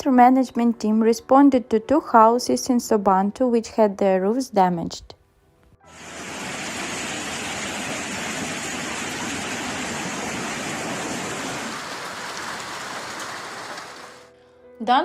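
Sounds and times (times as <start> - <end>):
storm water rushing: 5.9 - 14.3.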